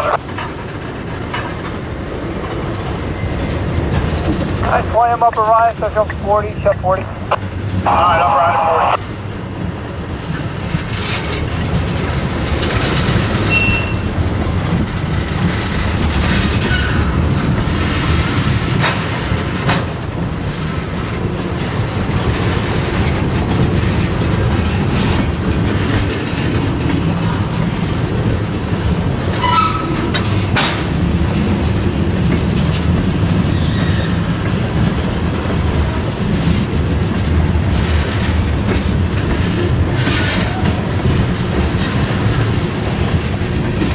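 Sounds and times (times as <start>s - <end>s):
freight train rumble: 0.0s - 43.9s
wheel clatter: 9.3s - 43.9s
wheel squeals: 12.6s - 14.2s, 29.3s - 30.2s, 33.5s - 34.3s.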